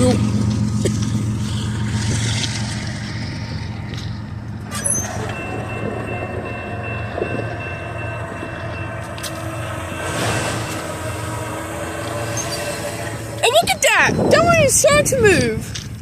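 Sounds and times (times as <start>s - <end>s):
diesel locomotive rumbling: 0.0s - 16.0s
high-pitched squeak: 4.7s - 14.9s.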